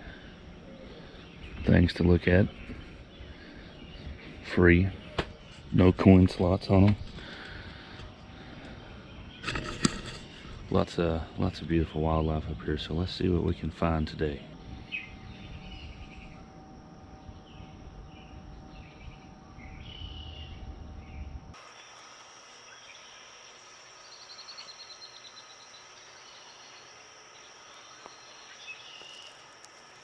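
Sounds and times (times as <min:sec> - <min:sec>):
low rumbling background: 0:10.5 - 0:21.6
high insect-like drone: 0:12.6 - 0:30.0
bird chirps: 0:17.3 - 0:30.0.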